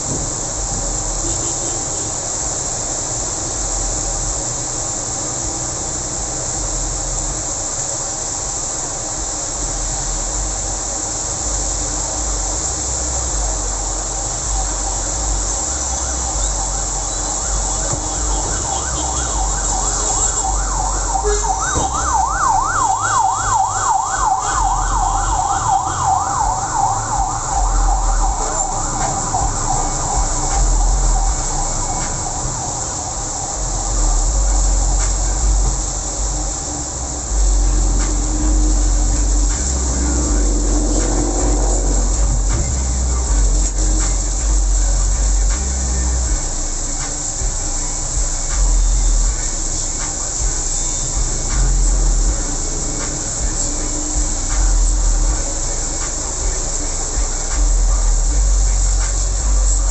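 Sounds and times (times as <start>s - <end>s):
rain hissing: 0.0s - 59.9s
traffic on wet road: 0.0s - 59.9s
emergency siren yelping: 14.2s - 45.4s.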